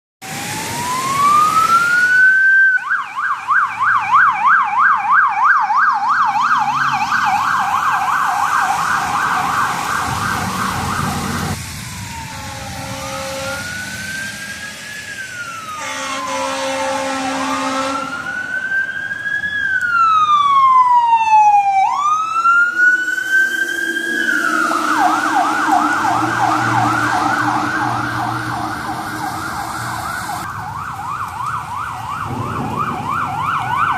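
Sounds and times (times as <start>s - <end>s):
second siren sweeping: 0.2s - 33.9s
electronic siren wailing and yelping: 0.4s - 33.9s
low horn-like tone: 12.3s - 13.8s, 15.7s - 18.1s, 22.9s - 30.4s.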